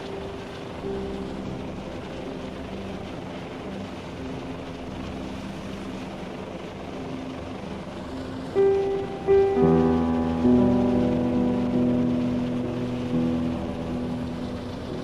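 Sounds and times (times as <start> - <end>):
helicopter rotor and engine: 0.0 - 9.3.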